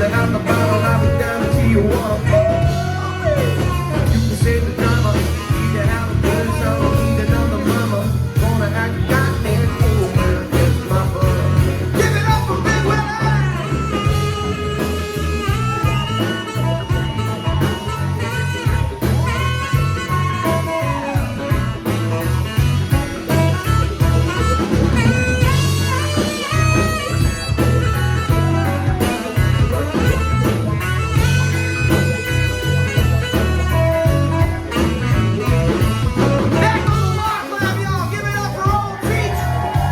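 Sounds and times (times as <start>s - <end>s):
bass and drum beat: 0.0s - 39.9s
lead instrument sliding melody: 0.0s - 39.9s.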